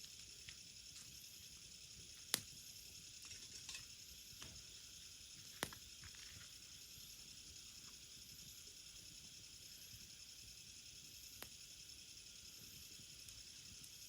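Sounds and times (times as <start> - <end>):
firewood crackling and popping: 0.0 - 10.2, 11.0 - 11.9, 12.5 - 14.0
steady high hiss: 0.0 - 14.0.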